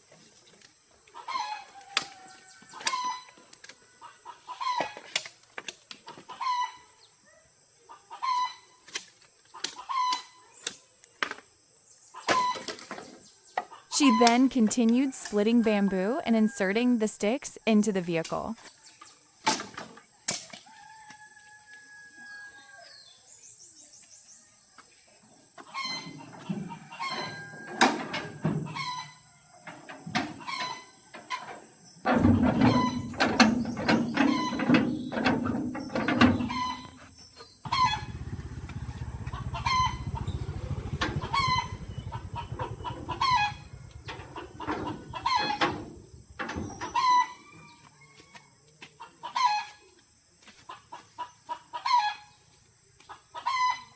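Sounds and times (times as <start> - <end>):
chickens clucking: 1.0 - 5.3, 6.0 - 7.1, 7.8 - 10.6, 12.2 - 19.2, 24.8 - 48.4, 49.0 - 50.0, 50.6 - 52.4, 53.0 - 53.9
low steady rumble: 37.6 - 46.8.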